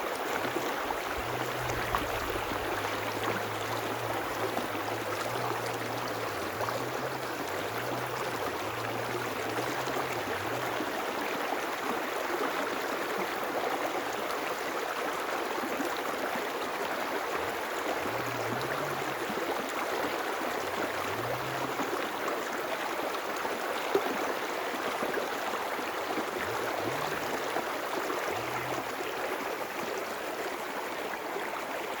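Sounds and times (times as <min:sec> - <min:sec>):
river water rushing: 0:00.0 - 0:32.0
faint low hum: 0:00.4 - 0:11.1, 0:17.3 - 0:22.1, 0:26.2 - 0:29.2.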